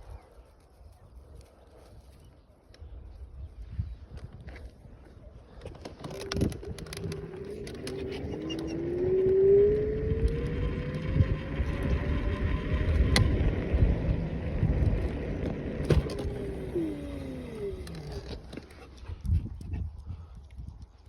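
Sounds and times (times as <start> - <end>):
vehicle engine running: 6.2 - 18.9.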